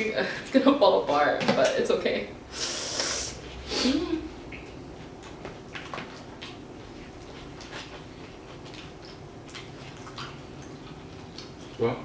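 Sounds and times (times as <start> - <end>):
people chewing: 4.4 - 12.0.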